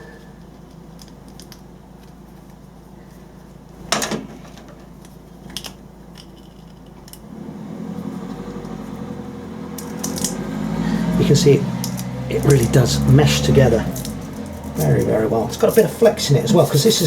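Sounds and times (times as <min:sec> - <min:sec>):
low steady hum: 0:00.0 - 0:17.0
fastener strips snapping together: 0:09.8 - 0:10.5, 0:11.7 - 0:12.7, 0:13.9 - 0:15.0.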